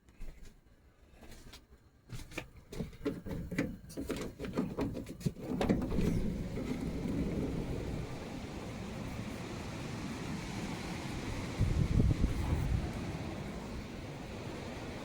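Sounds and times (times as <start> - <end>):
low wind rumble: 5.4 - 15.0.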